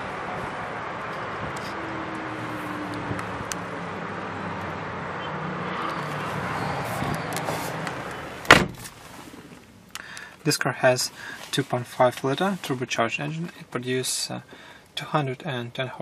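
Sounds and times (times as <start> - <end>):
car door slamming: 8.4 - 9.0.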